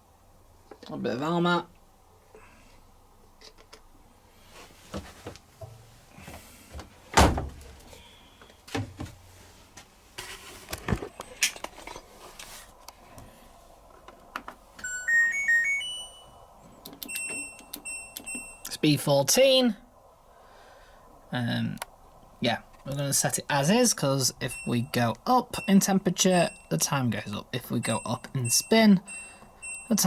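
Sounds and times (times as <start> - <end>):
washing machine knocks and thunks: 7.2 - 7.6
rising electronic beeps: 14.8 - 16.4.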